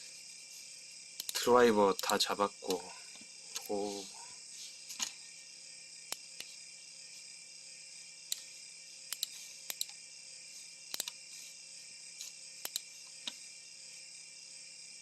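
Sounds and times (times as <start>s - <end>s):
steady high hiss: 0.0s - 15.0s
laptop control clicks: 10.9s - 11.2s.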